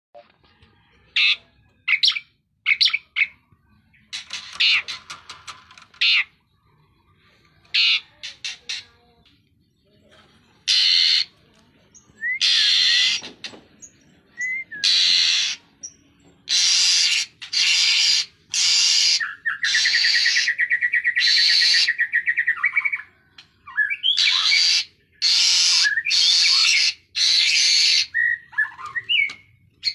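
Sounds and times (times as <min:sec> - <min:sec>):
bird rattling trill: 0:04.2 - 0:06.3
bird harsh rasping screeches: 0:04.2 - 0:06.4, 0:10.7 - 0:11.3, 0:12.4 - 0:13.3, 0:14.8 - 0:15.6, 0:16.5 - 0:20.5, 0:24.2 - 0:28.1.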